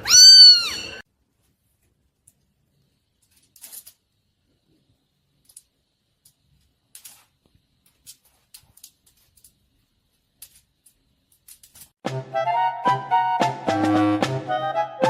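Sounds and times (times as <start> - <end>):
loud music with drums: 13.4 - 14.5.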